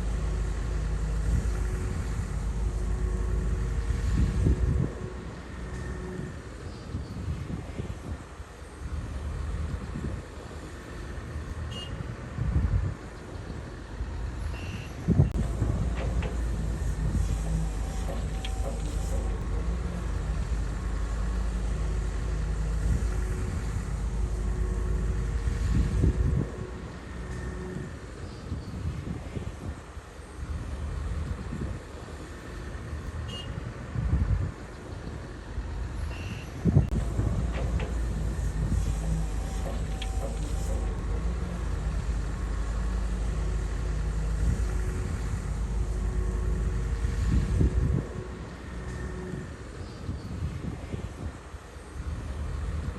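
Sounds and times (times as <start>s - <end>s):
bulldozer diesel engine droning: 0.0s - 52.9s.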